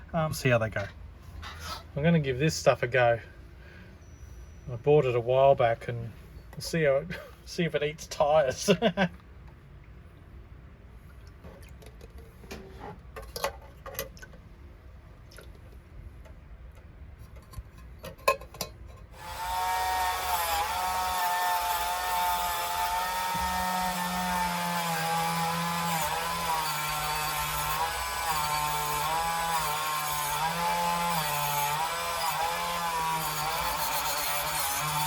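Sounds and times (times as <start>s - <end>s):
small electric machine whining: 19.2s - 35.0s.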